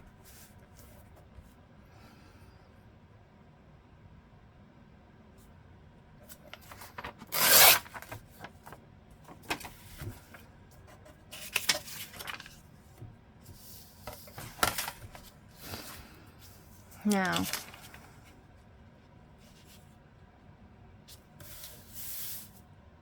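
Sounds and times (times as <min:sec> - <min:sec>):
paper rustling: 0:06.3 - 0:18.3.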